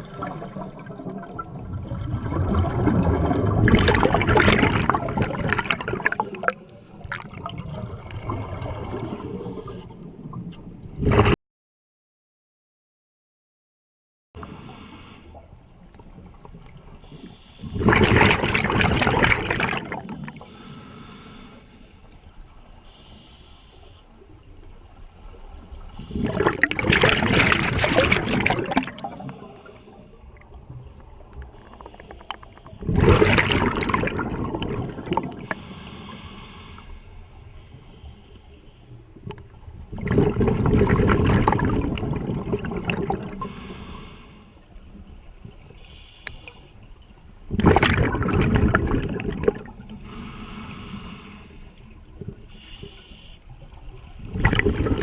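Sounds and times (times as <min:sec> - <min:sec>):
exhaled bubbles rushing: 0:00.0 - 0:11.4, 0:17.8 - 0:20.4, 0:26.0 - 0:29.3, 0:32.8 - 0:35.6, 0:39.7 - 0:43.5, 0:47.5 - 0:49.9, 0:54.2 - 0:55.0.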